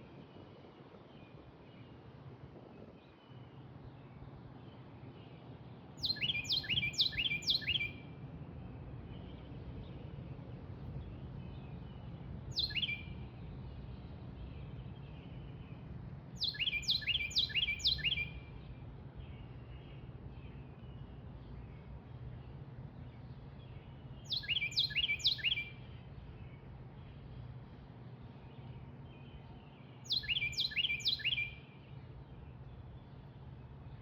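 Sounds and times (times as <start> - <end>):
bird whistling song: 6.0 - 8.0, 12.5 - 13.2, 16.4 - 18.6, 24.2 - 26.0, 30.0 - 31.8
low background rumble: 25.7 - 30.1.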